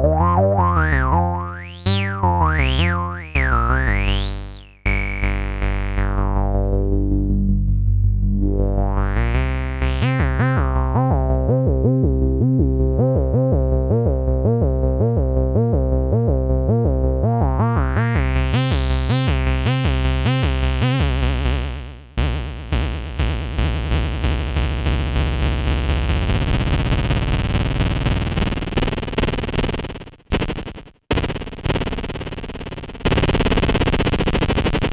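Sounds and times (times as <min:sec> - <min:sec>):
synthesizer bass tone: 0:00.0 - 0:21.6.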